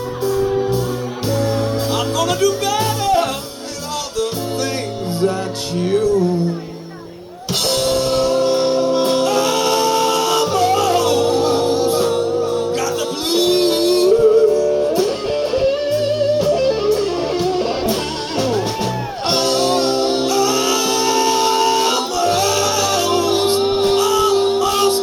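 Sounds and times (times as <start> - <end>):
blues band playing: 0.0 - 25.0
lead guitar bending notes: 0.0 - 25.0.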